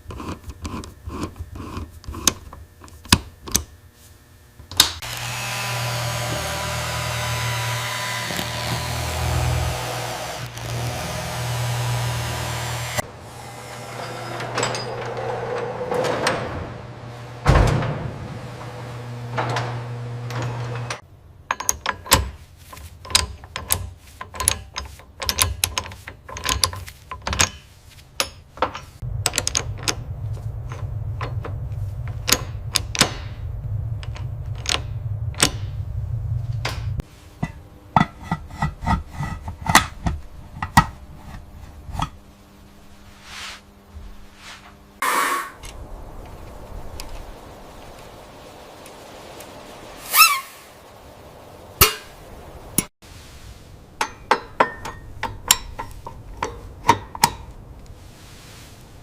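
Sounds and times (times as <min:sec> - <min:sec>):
electric motor hum: 0:04.2 - 0:15.8, 0:16.7 - 0:21.0, 0:29.0 - 0:37.0.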